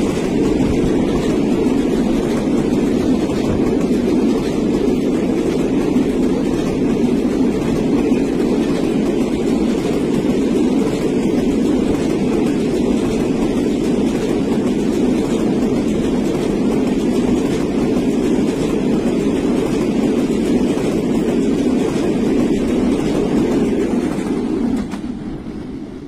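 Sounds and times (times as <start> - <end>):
train wheels clattering on rails: 0.0 - 26.0.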